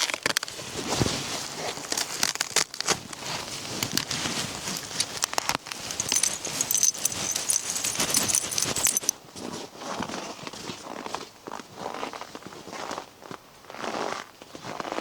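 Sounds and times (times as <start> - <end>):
crinkling and clicking handling: 1.8 - 9.1
soft rustling: 3.1 - 9.1.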